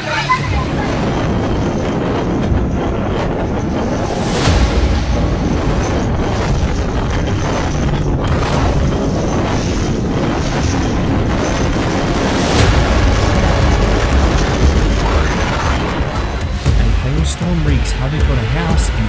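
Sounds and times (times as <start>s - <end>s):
wind buffeting microphone: 0.0s - 18.7s.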